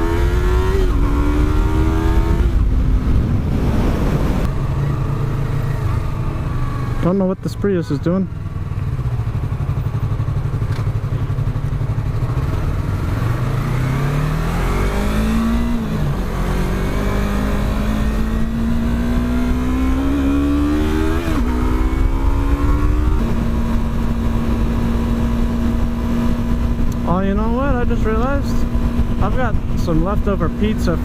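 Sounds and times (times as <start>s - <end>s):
motorcycle engine accelerating: 0.0s - 31.0s
low rumble: 0.6s - 6.9s.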